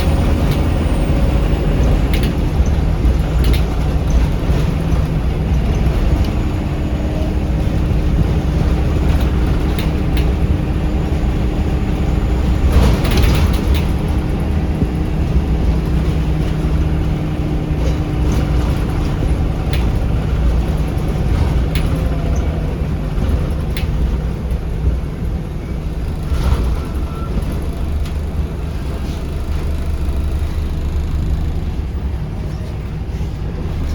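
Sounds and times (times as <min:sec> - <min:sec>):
bus body rattles and clicks: 0:00.0 - 0:33.9
diesel bus engine droning: 0:00.0 - 0:33.9
road rumble: 0:00.0 - 0:33.9.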